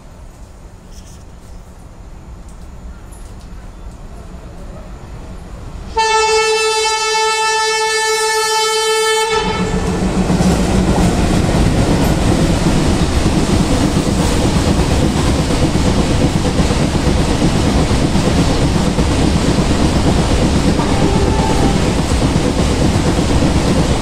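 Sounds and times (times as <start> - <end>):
train rumbling past: 0.0 - 24.0
locomotive horn: 5.9 - 10.0, 20.8 - 22.0.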